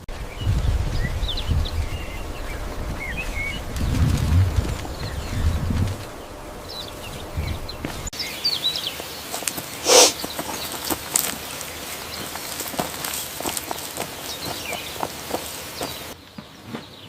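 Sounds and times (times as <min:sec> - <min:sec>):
small birds chirping: 0:00.0 - 0:17.0
loud hissing burst: 0:09.7 - 0:10.3.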